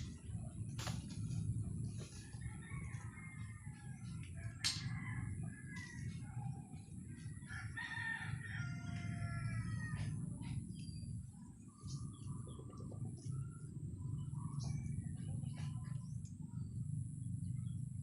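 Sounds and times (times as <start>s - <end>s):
steady low rumble: 0.0s - 18.0s
rooster crowing: 2.1s - 10.5s.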